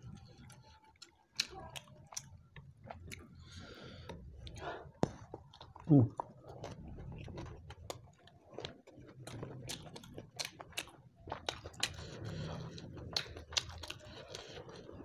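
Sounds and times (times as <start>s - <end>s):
person chewing and lip-smacking: 0.0s - 3.5s, 4.1s - 15.0s.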